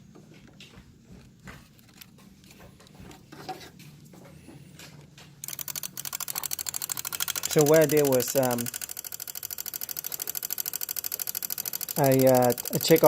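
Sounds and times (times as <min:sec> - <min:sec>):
relay clicking rapidly: 0:05.4 - 0:13.0.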